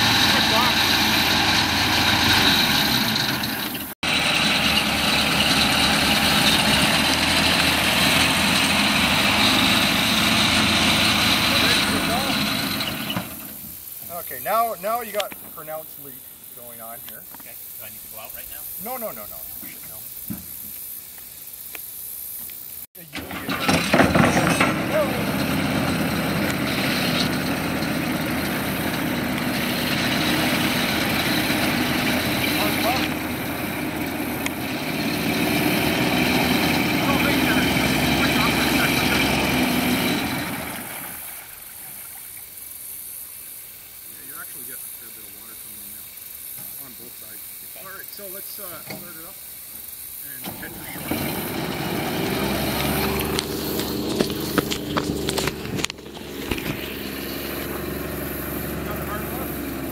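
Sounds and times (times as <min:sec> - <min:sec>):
car engine running in water: 0:23.2 - 0:43.7, 0:50.4 - 0:59.9
car engine running steadily: 0:51.7 - 0:59.9.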